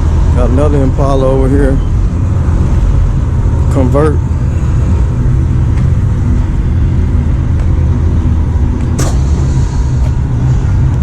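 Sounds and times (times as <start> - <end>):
car engines rumbling: 0.0 - 11.0
brief sharp noise: 9.0 - 10.0.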